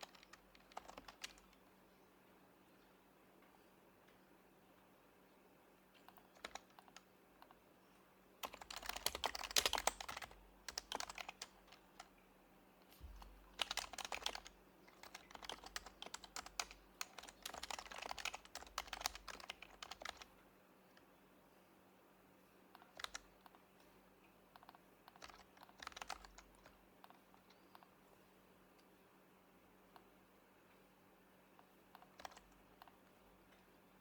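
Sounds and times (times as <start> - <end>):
keyboard typing: 0.0 - 1.6, 6.0 - 7.6, 8.4 - 12.2, 13.0 - 20.3, 22.7 - 23.6, 24.5 - 27.9, 31.6 - 33.6.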